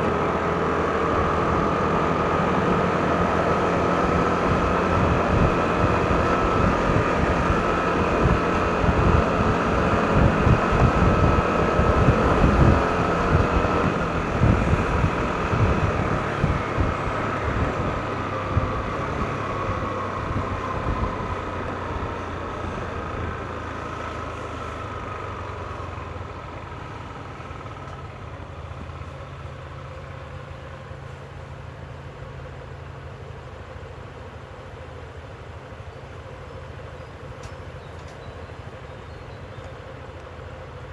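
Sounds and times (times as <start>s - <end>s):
scooter engine and drive whine: 0.0s - 40.9s
steady low hum: 0.0s - 40.9s
wind buffeting on microphone: 2.4s - 23.4s.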